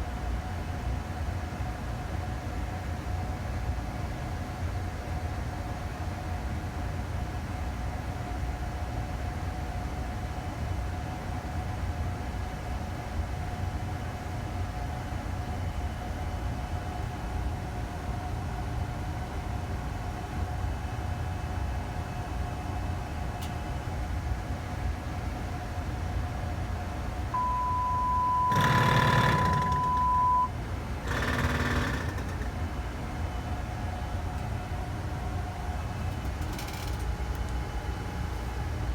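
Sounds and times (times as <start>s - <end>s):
aircraft systems hum: 15.0s - 38.9s
high beep: 27.4s - 30.5s
rapid mechanical buzzing: 27.4s - 32.8s.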